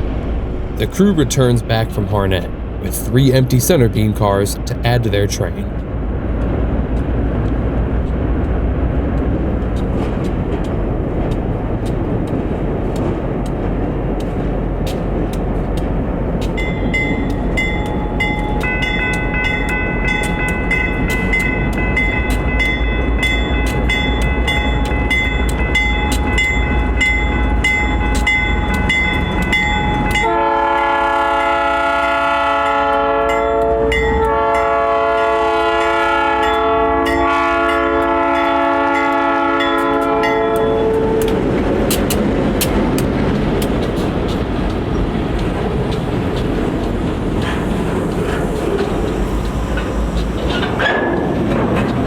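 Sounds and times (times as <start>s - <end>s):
train engine rumble: 0.0s - 52.0s
locomotive horn blasts: 30.2s - 41.4s
wheels clicking over rail joints: 41.2s - 52.0s.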